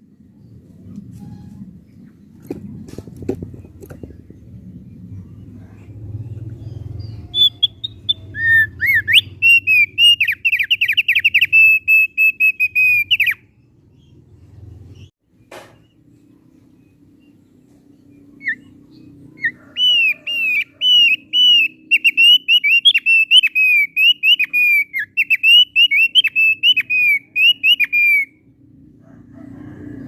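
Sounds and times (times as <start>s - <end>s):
low background rumble: 0.0s - 21.4s
bird singing whistles and trills: 6.6s - 13.6s, 18.0s - 28.4s.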